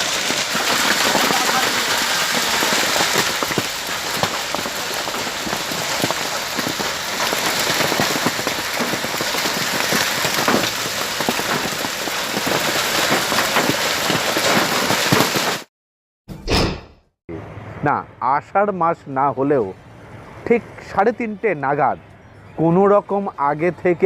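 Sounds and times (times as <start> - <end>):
hailstones striking hard surfaces: 0.0 - 15.7
heavy rain hissing: 0.0 - 15.7.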